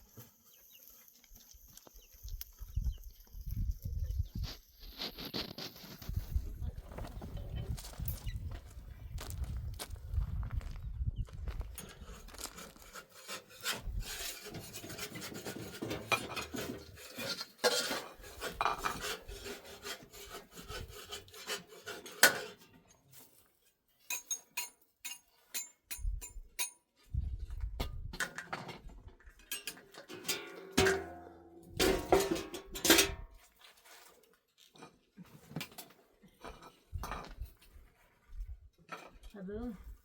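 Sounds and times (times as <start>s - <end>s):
rubbing and scraping: 3.4s - 9.6s, 11.6s - 24.3s.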